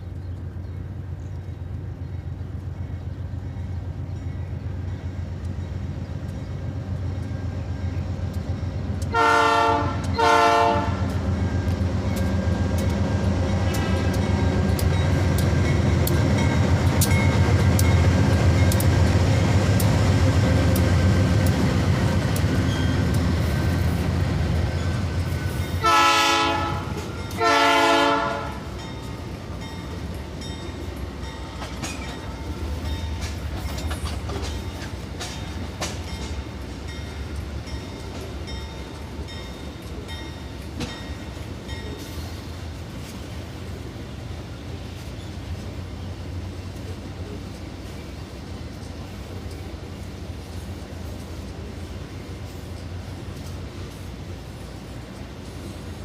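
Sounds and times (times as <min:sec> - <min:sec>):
train rumbling: 0:00.0 - 0:56.0
locomotive horn blasts: 0:09.1 - 0:11.2, 0:25.8 - 0:28.7
wheels clickety-clack: 0:10.8 - 0:25.7, 0:28.9 - 0:42.3.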